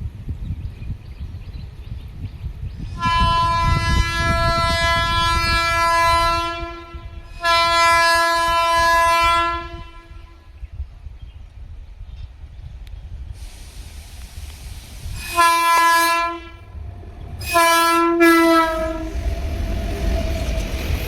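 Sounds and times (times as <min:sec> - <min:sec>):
moving train rumble: 0:00.0 - 0:21.0
locomotive horn blasts: 0:03.0 - 0:10.4, 0:15.2 - 0:16.7, 0:17.4 - 0:19.1.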